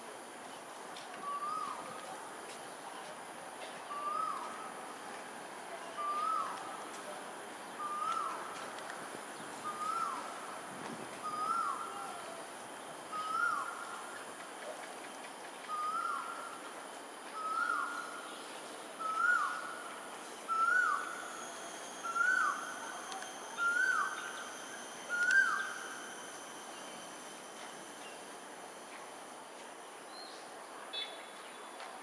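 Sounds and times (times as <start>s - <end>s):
faint high insect buzz: 0.0s - 32.0s
bird whistled note: 20.4s - 28.2s.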